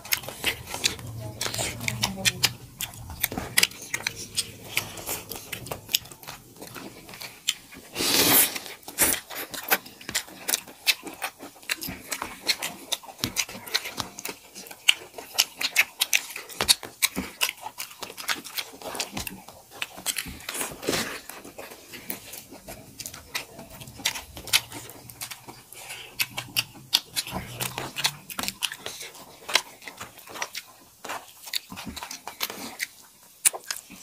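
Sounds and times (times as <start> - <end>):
wet chewing and lip-smacking: 0.0 - 34.0.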